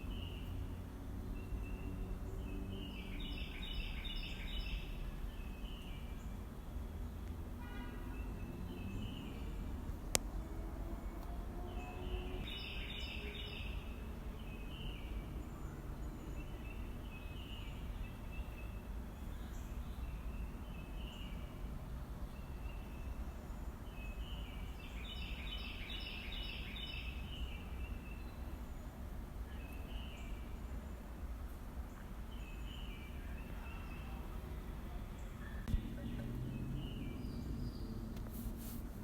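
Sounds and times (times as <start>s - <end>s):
birds singing: 0.0s - 10.5s, 11.6s - 21.6s, 22.2s - 31.2s, 31.9s - 38.2s
low outdoor rumble: 28.4s - 39.0s.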